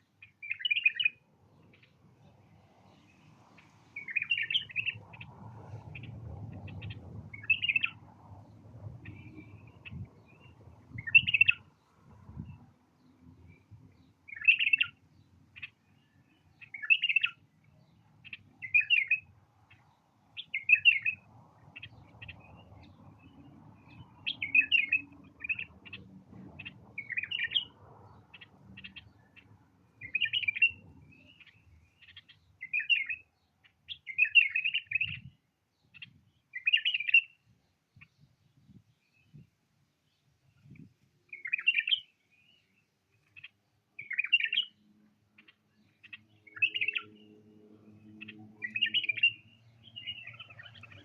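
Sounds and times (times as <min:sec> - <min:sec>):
bulbul singing song phrases: 0:45.8 - 0:51.0.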